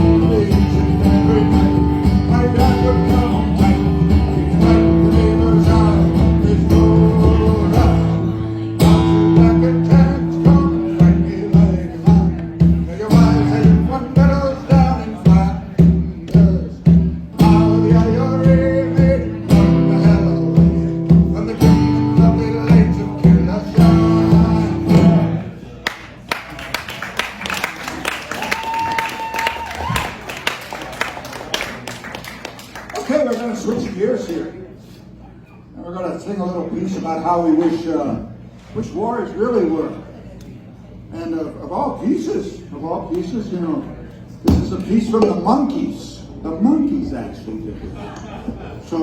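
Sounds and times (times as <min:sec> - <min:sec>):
strummed acoustic guitar: 0:00.0 - 0:25.5.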